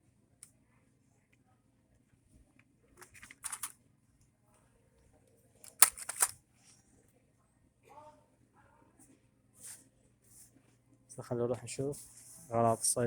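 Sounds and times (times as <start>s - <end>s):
brief rustling: 3.0s - 3.7s, 5.7s - 6.4s.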